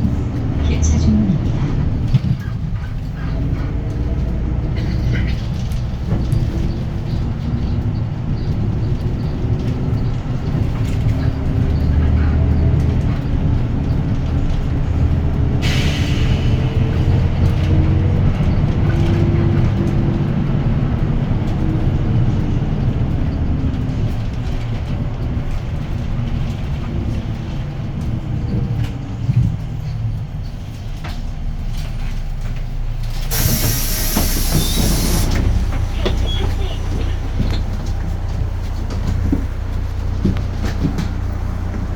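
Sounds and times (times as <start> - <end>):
bus diesel engine running: 0.0 - 41.9
compressed air hiss: 33.3 - 35.6.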